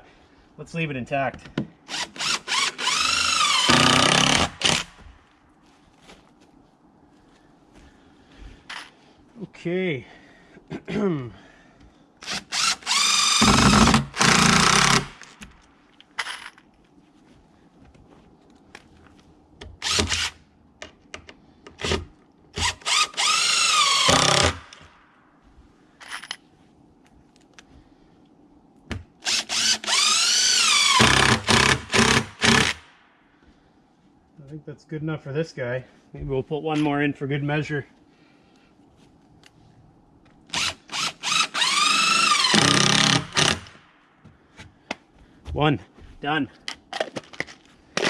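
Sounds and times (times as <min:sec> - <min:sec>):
impact driver driving screws: 0:01.9 - 0:05.1, 0:12.2 - 0:15.4, 0:19.8 - 0:20.4, 0:21.8 - 0:24.9, 0:29.2 - 0:32.8, 0:40.6 - 0:43.8.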